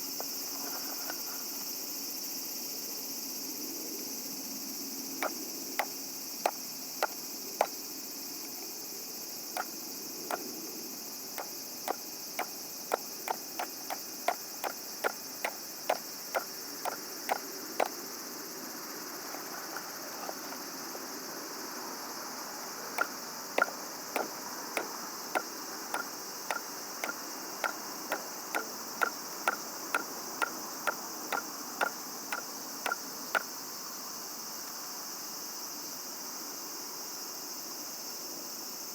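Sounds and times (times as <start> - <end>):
night insects chirring: 0.0 - 38.9
sharp ringing knocks: 11.9 - 17.0, 23.0 - 33.0.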